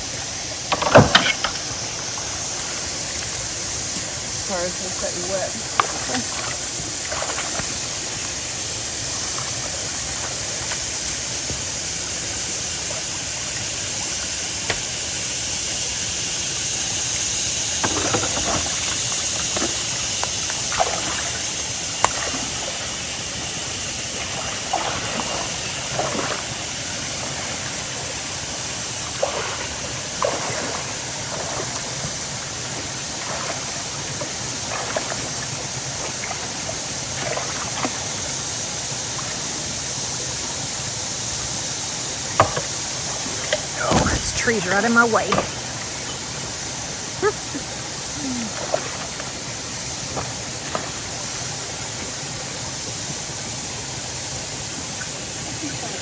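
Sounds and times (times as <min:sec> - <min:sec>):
creek water running: 0:00.0 - 0:56.0
splashes and knocks: 0:00.6 - 0:08.4, 0:14.2 - 0:15.2, 0:17.7 - 0:23.0, 0:24.1 - 0:27.8, 0:29.1 - 0:38.3, 0:42.2 - 0:46.7, 0:48.3 - 0:52.2.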